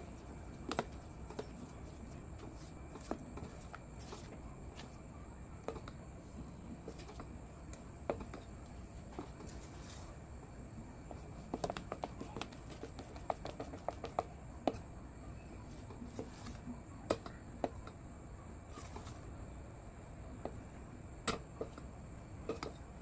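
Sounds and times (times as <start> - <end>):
faint low hum: 0.0 - 23.0
soap mixture popping: 11.1 - 14.8.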